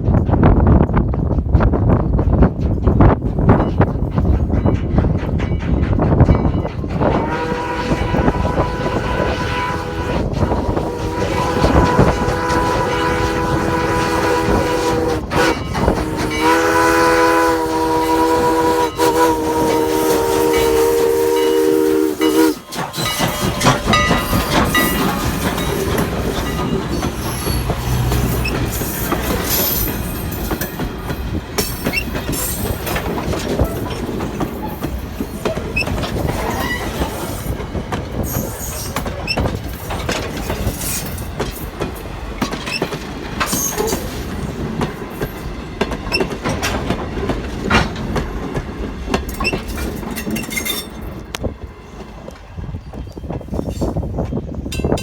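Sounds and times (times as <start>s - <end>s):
train wheels clacking over rails: 0.0s - 55.0s
steam whistle blast: 7.1s - 23.2s.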